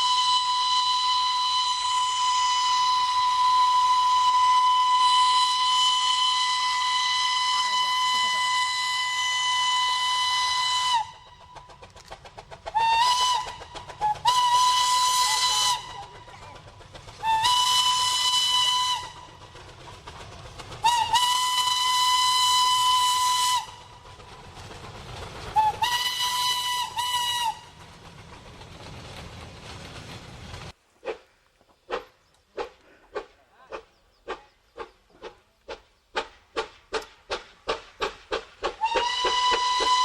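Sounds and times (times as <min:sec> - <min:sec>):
steam locomotive whistle blasts: 0:00.0 - 0:11.3, 0:12.7 - 0:16.0, 0:17.2 - 0:19.3, 0:20.8 - 0:23.9, 0:25.6 - 0:27.7, 0:38.8 - 0:40.0
rapid rhythmic beat of locomotive: 0:09.6 - 0:30.8, 0:32.6 - 0:40.0.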